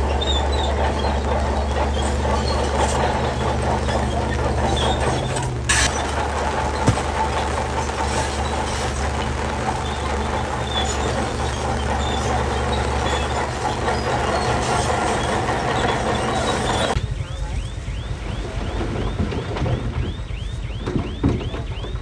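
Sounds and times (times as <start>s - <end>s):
machinery rattling and scraping: 0.0s - 17.0s
diesel engine drone: 0.0s - 22.0s.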